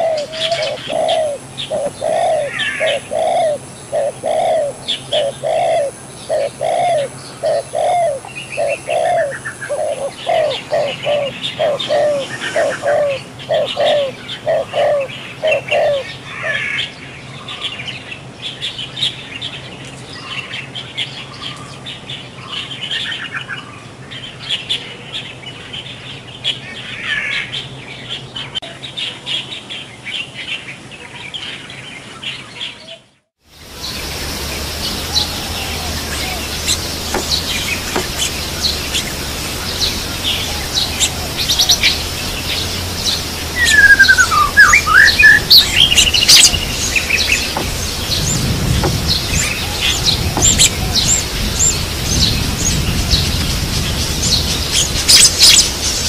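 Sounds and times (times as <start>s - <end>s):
birds chirping: 0.0s - 56.0s
loud sweeping bird calls: 0.0s - 56.0s.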